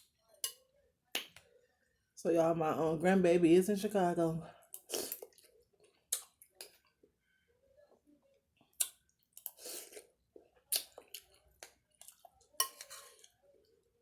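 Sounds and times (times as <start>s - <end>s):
person chewing food: 4.6s - 7.1s, 8.6s - 13.5s.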